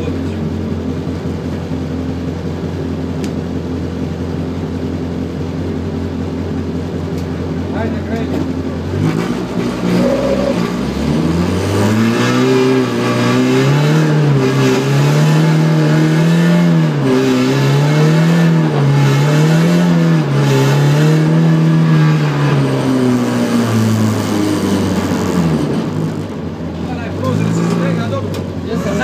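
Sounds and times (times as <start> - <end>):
car engine revving: 6.1 - 29.0.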